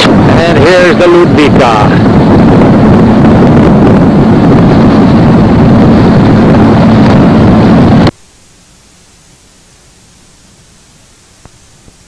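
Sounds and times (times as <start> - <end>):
wind buffeting microphone: 0.0 - 8.1
steady low hum: 0.0 - 12.0
low hiss: 8.1 - 12.0.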